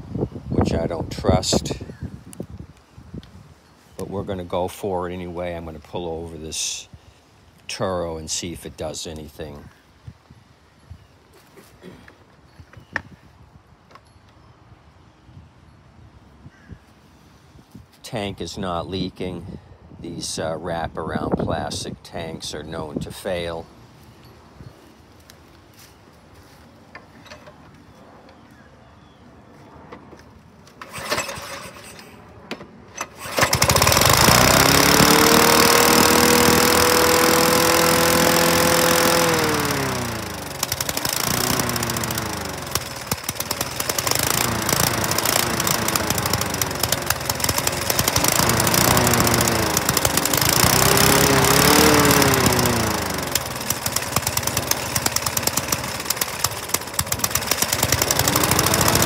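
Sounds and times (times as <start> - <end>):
mower pull-start rattling: 26.9 - 27.7, 30.7 - 32.2, 32.9 - 59.0
lawn mower engine surging: 30.7 - 59.0.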